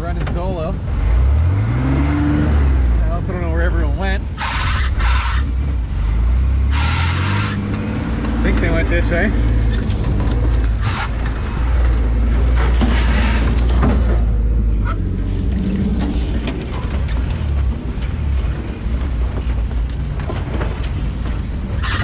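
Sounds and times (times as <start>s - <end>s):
off-road vehicle engine running: 0.0s - 22.0s
knocks and clatter: 9.5s - 22.0s.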